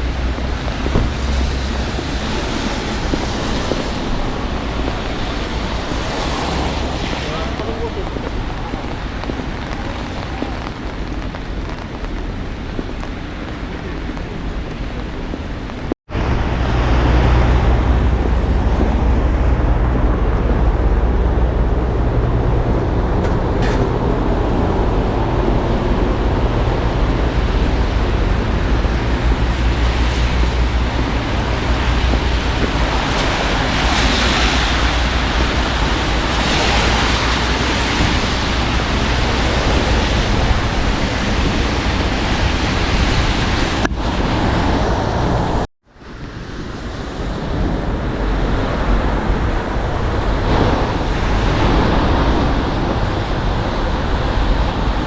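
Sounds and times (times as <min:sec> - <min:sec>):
passing traffic in wet weather: 0:00.0 - 0:55.0
wind: 0:00.0 - 0:55.0.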